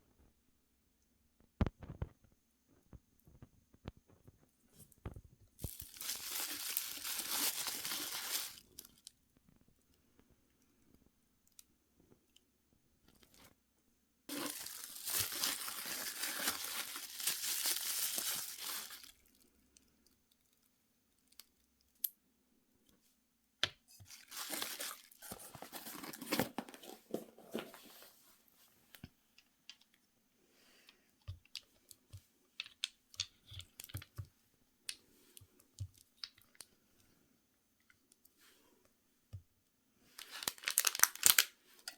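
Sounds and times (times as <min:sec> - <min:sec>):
packaging torn and crinkled: 0:05.6 - 0:09.0, 0:14.3 - 0:19.3, 0:24.1 - 0:26.5, 0:40.2 - 0:41.6.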